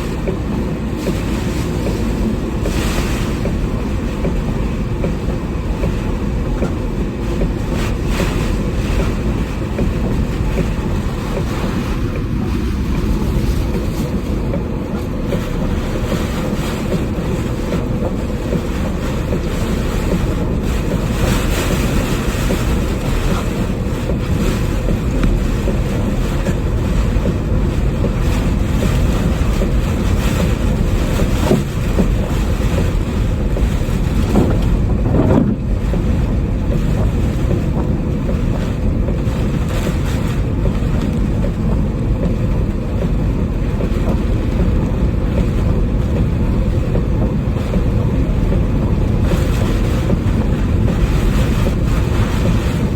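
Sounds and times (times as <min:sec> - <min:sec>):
strong wind blowing: 0:06.2 - 0:18.4, 0:19.2 - 0:38.6.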